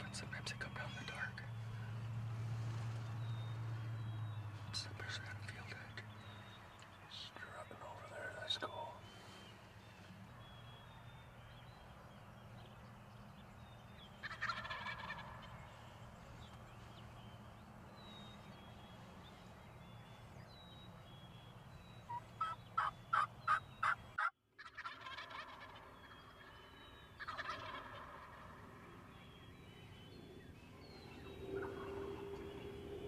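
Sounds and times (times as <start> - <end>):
faint songbird chirps: 0.0 - 24.3, 24.9 - 33.0
turkeys gobbling: 14.2 - 15.5, 22.1 - 26.5, 27.2 - 28.7, 31.5 - 32.6.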